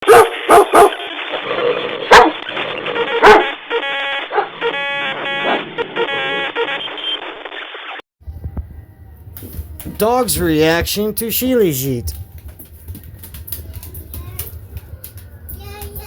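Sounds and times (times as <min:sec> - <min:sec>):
dog barking: 0:00.0 - 0:01.2, 0:02.0 - 0:03.6, 0:04.3 - 0:04.7.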